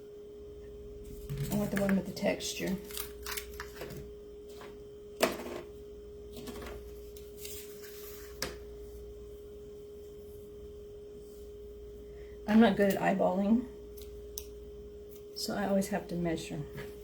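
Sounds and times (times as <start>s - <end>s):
faint hum: 0.0s - 17.0s
rustling of craft supplies: 1.0s - 4.8s.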